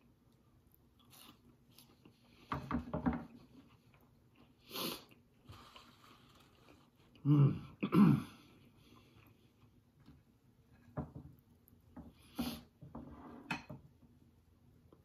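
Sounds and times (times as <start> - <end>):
chewing french fry: 0.0 - 2.4.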